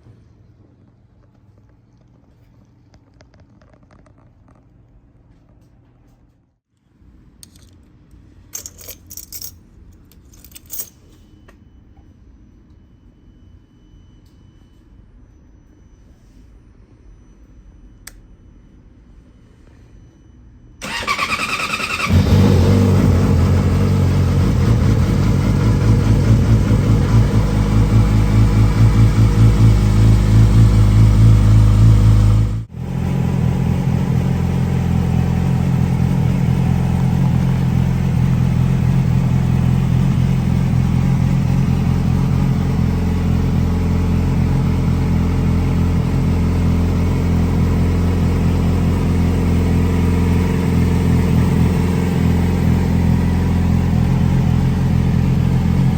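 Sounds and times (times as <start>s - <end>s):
motorcycle engine idling: 20.8s - 55.9s.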